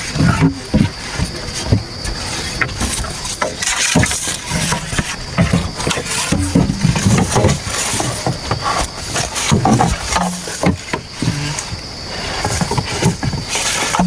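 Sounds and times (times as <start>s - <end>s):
wood knocks: 6.4s - 7.4s.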